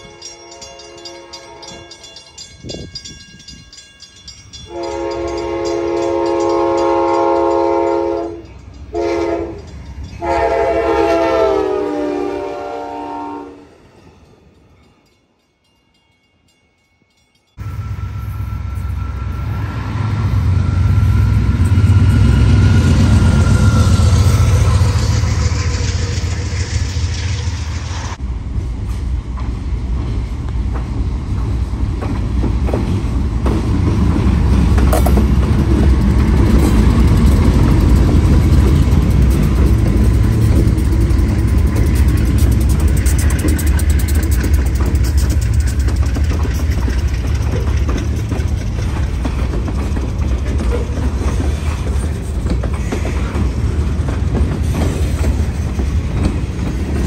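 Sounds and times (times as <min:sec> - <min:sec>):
locomotive horn: 0:00.0 - 0:02.2, 0:04.7 - 0:13.7
freight train rumbling past: 0:00.0 - 0:57.0.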